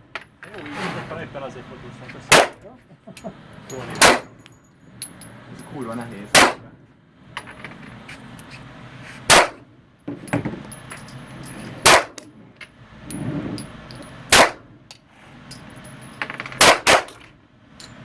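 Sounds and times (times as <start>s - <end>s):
handgun shots with echo: 2.3s - 2.6s, 4.0s - 4.4s, 6.3s - 6.6s, 9.3s - 9.6s, 11.8s - 12.2s, 14.3s - 14.6s, 16.6s - 17.2s
faint clicks and clinks: 3.1s - 6.0s, 10.2s - 11.8s, 17.2s - 18.0s.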